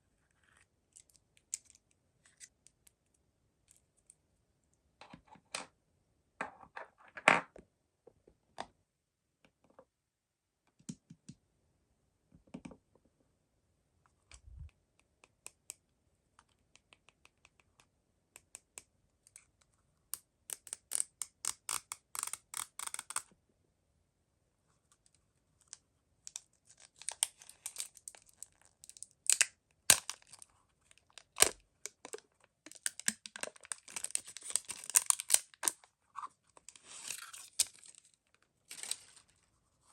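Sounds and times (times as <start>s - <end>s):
wrapper crinkling and tearing: 26.7s - 30.4s, 31.1s - 35.8s, 36.7s - 38.1s, 38.7s - 39.3s.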